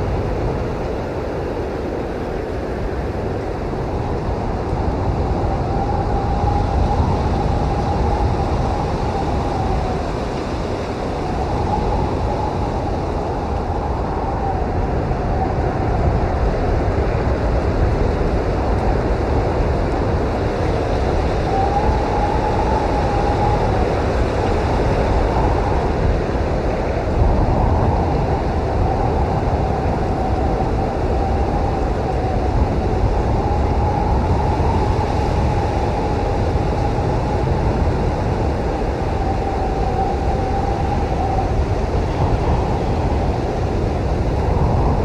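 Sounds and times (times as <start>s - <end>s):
blizzard wind howling: 0.0s - 45.0s.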